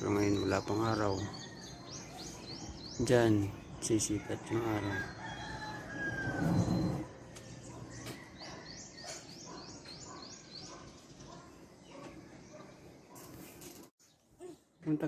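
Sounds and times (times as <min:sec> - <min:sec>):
rooster crowing: 0:04.3 - 0:07.0
bird chirping downward sweeps: 0:05.4 - 0:11.2.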